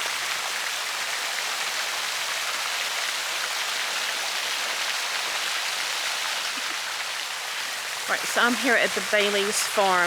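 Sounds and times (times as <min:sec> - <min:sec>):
splashing water: 0:06.2 - 0:10.0.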